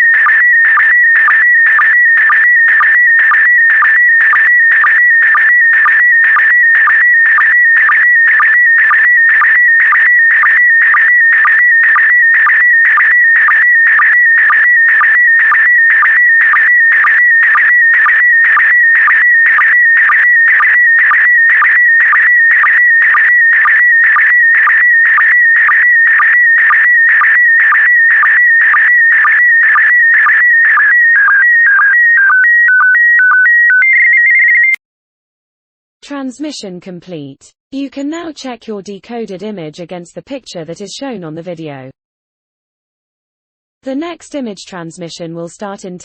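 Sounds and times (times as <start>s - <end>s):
sync pulses: 0.0s - 32.5s
stepped steady tones: 0.0s - 34.4s.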